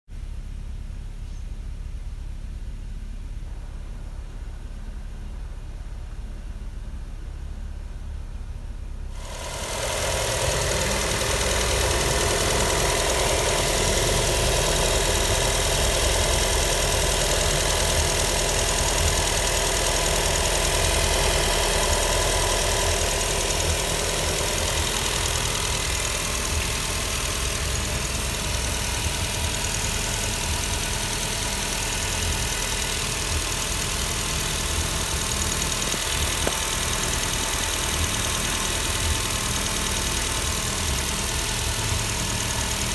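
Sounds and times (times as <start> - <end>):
fan motor running: 0.2 - 42.9.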